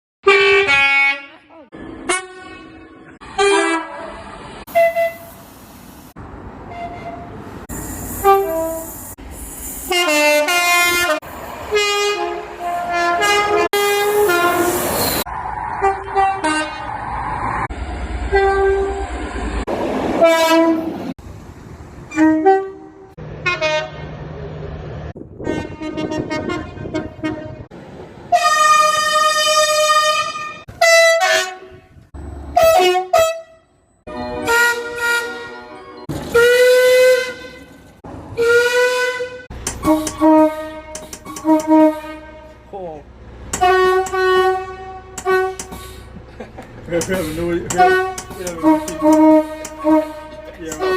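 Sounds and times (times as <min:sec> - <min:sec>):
train horn and whistle blasts: 0:00.2 - 0:05.4, 0:06.7 - 0:09.0, 0:09.9 - 0:15.2, 0:15.8 - 0:16.9, 0:18.3 - 0:19.0, 0:20.2 - 0:20.9, 0:22.1 - 0:24.1, 0:25.4 - 0:27.7, 0:28.3 - 0:37.7, 0:38.4 - 0:42.7, 0:43.5 - 0:46.0, 0:47.7 - 0:50.9.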